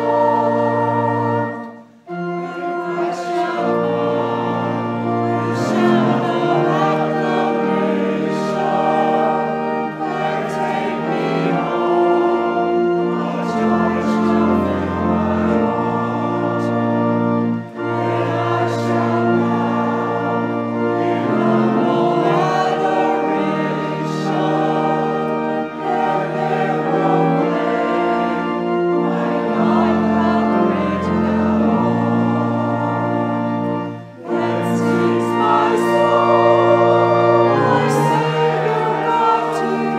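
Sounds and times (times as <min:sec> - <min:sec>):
organ-like held notes: 0:00.0 - 0:39.9
people singing a hymn: 0:00.0 - 0:39.9.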